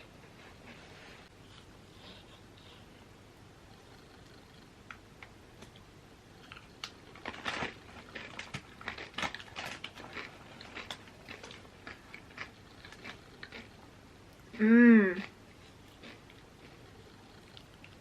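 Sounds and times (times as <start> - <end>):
chips being crunched and chewed: 6.4 - 13.7.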